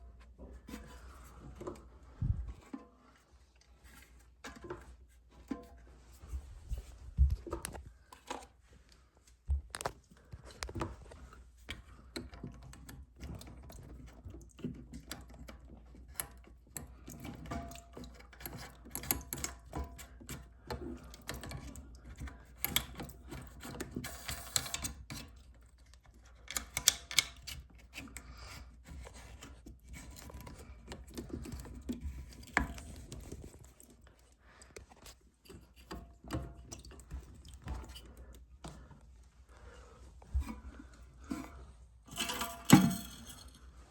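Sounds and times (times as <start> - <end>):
clicks and knocks of hand work: 9.5 - 39.0.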